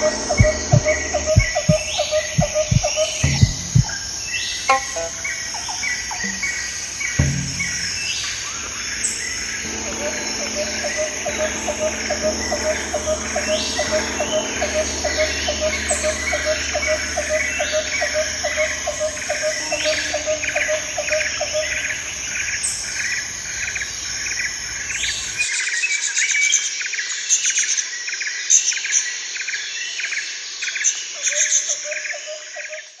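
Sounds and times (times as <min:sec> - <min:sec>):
low background rumble: 0:00.0 - 0:04.3, 0:07.2 - 0:23.3
bird calls: 0:00.0 - 0:22.8
low pulsing call: 0:00.0 - 0:23.0
high insect drone: 0:00.0 - 0:25.4.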